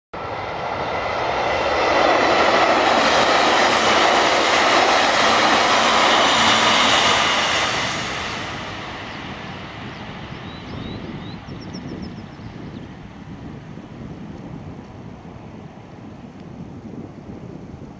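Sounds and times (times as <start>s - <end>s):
train wheels rushing on rail: 0.2s - 12.1s.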